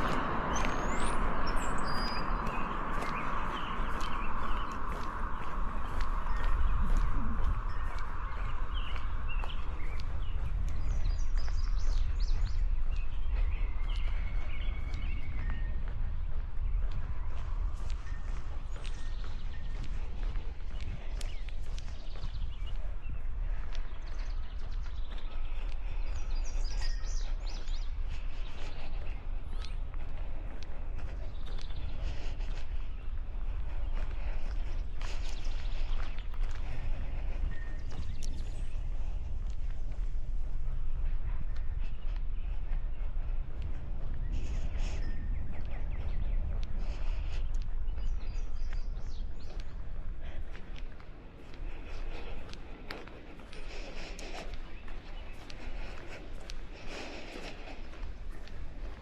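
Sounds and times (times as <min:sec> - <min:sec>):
songbirds chirping and whistling: 0:00.0 - 0:59.0
wind rumbling on microphone: 0:00.0 - 0:59.0.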